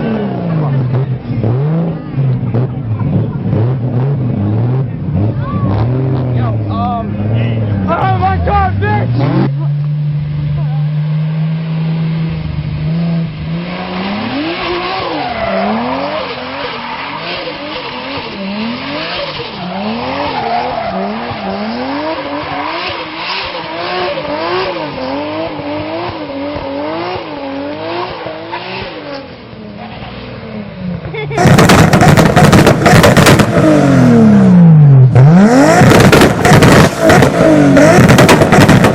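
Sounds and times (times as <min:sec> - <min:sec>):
car engine revving: 0:00.0 - 0:38.9
tyres squealing: 0:13.9 - 0:25.2.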